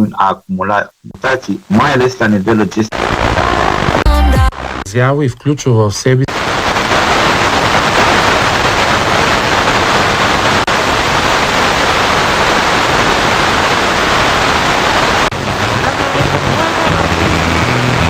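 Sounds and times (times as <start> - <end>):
faint pitched radio signal: 0.0 - 6.8
radio static hiss: 0.0 - 18.0.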